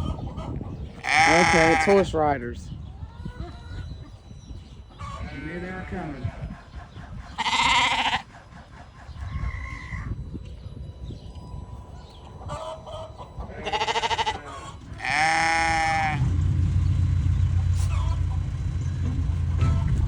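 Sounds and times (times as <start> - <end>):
sheep bleating: 1.0 - 2.1, 7.4 - 8.3, 13.6 - 16.3
low steady rumble: 14.9 - 20.0.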